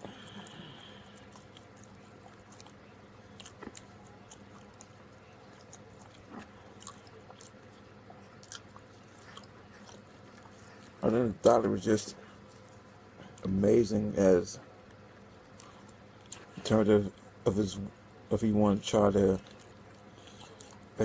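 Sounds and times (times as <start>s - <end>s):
person chewing food: 0.0s - 11.2s, 12.1s - 13.6s, 15.2s - 17.4s, 19.4s - 21.0s.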